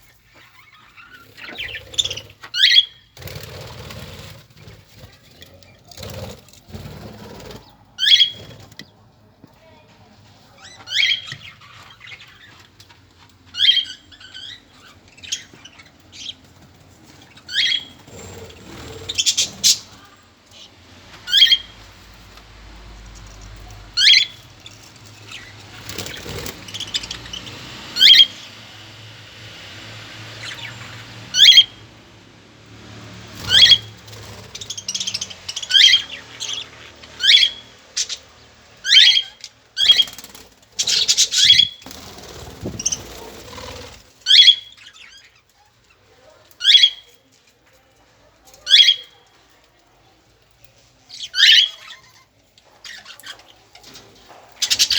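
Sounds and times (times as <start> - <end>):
birds chirping: 0.0 - 54.9
soft fluttering thumps: 42.0 - 43.8.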